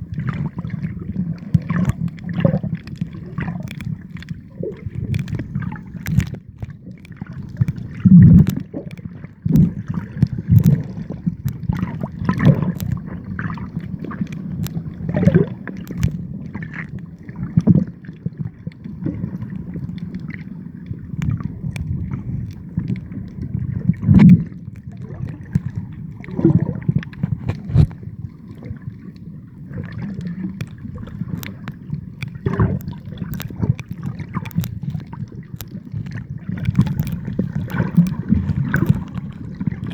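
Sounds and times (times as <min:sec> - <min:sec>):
water sloshing and gurgling: 0:00.0 - 0:39.9
sharp splashes and knocks: 0:25.4 - 0:28.0, 0:29.8 - 0:39.9.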